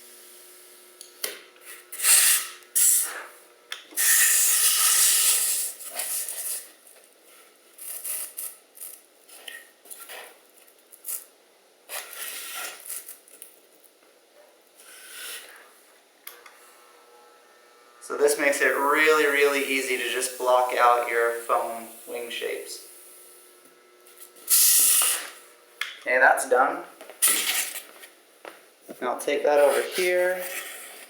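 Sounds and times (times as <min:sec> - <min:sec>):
foam rubbing and scraping on wire: 0:29.6 - 0:31.0.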